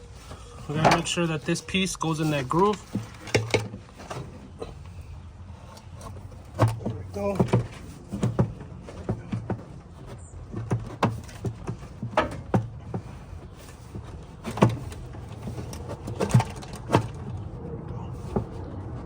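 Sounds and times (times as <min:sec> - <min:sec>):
plastic tank clicking and knocking: 0:02.7 - 0:04.4, 0:05.8 - 0:17.4.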